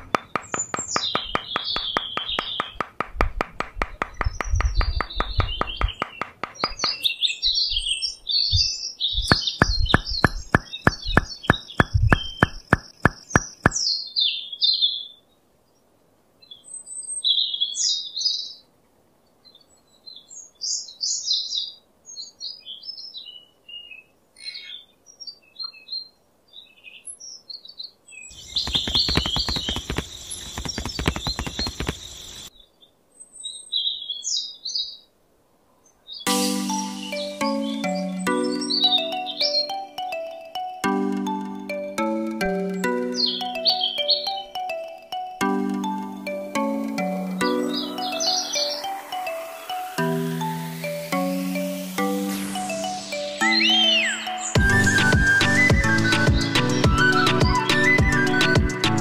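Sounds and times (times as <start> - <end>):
fast pulsing beat: 0.0 - 7.0, 9.3 - 13.8, 28.5 - 32.0
birds chirping: 0.0 - 15.2, 19.5 - 35.1, 35.8 - 59.0.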